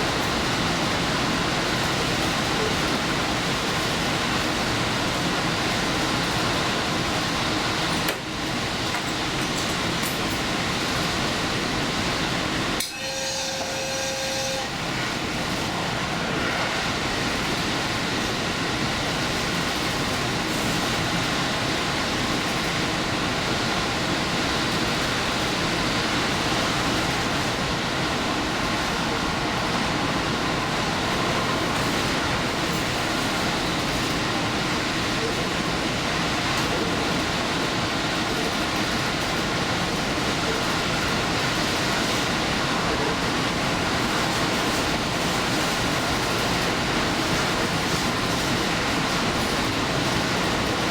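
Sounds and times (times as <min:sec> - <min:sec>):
train wheels rumbling on rail: 0:00.0 - 0:50.9
short multi-pitch tone: 0:12.9 - 0:14.7.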